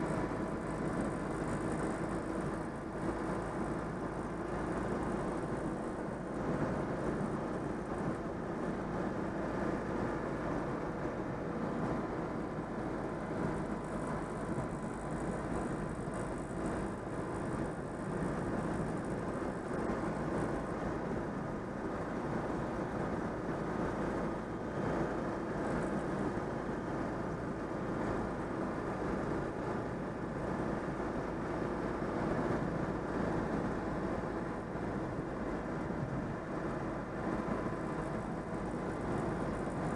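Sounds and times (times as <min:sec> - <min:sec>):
car engine running: 0:00.0 - 0:39.9
road noise: 0:00.0 - 0:39.9.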